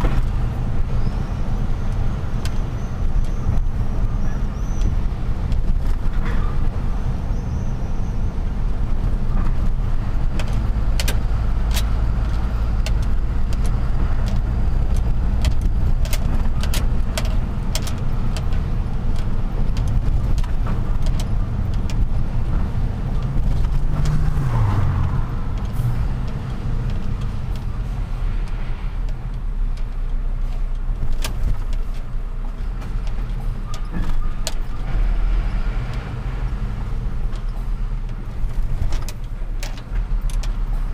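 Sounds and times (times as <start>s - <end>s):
sharp clicks and rattles: 8.7s - 35.1s, 35.8s - 40.9s.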